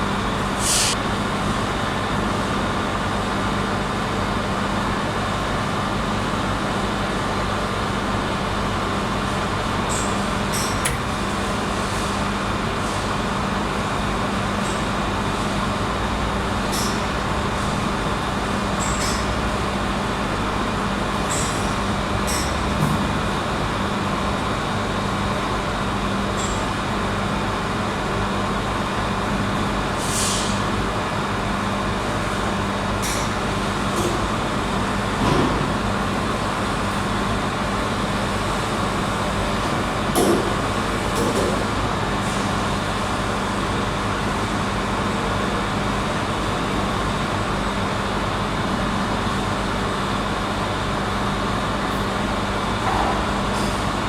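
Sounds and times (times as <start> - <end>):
industrial machinery hum: 0.0 - 54.0
short air hisses: 0.6 - 1.0, 30.0 - 30.6.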